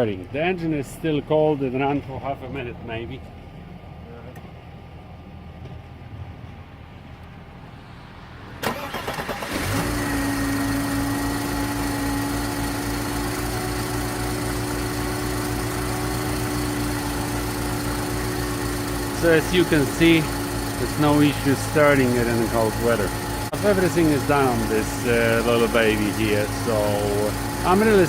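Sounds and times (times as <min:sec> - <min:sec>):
car engine idling: 0:00.0 - 0:28.0
starter motor cranking: 0:08.6 - 0:28.0.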